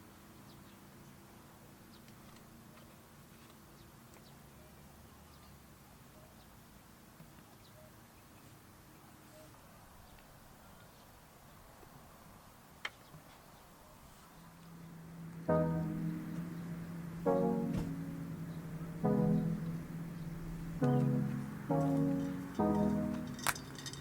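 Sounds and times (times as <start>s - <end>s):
low hum: 14.9s - 23.6s.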